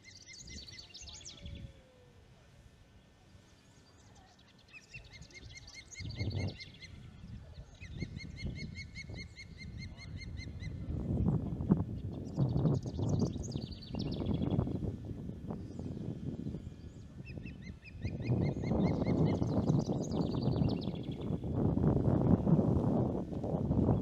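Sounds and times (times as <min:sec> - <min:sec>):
low gusty rumble: 0:10.6 - 0:17.6, 0:18.2 - 0:24.0.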